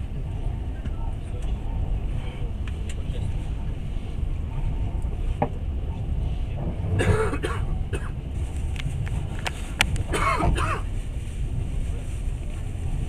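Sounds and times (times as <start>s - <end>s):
moving train rumble: 0.0s - 13.0s
person coughing: 7.0s - 8.2s, 10.1s - 10.9s.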